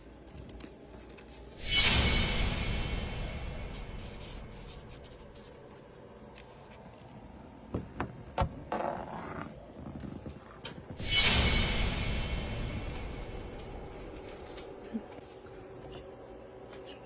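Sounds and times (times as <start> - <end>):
pen scratching on paper: 3.8 - 5.6.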